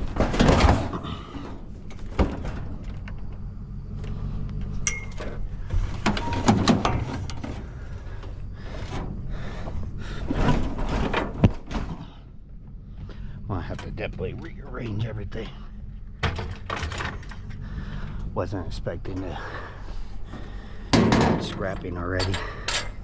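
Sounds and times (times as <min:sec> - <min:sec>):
objects knocking and clattering: 0:00.0 - 0:03.4, 0:04.7 - 0:07.6, 0:16.2 - 0:17.6, 0:20.9 - 0:23.0
steady low hum: 0:00.0 - 0:23.0.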